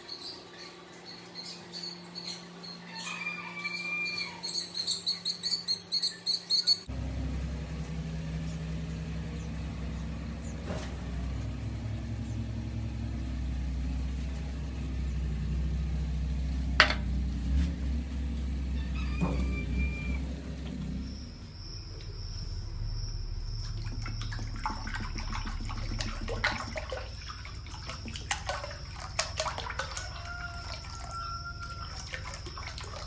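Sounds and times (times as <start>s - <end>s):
small birds chirping: 4.1s - 6.9s.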